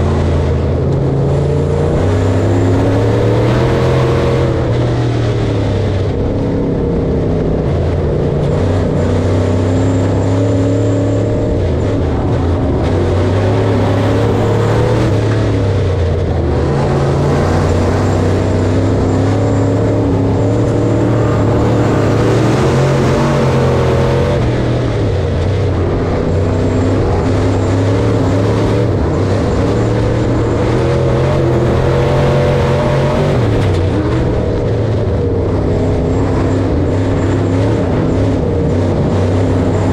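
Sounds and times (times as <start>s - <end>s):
harvester engine running: 0.0s - 39.9s.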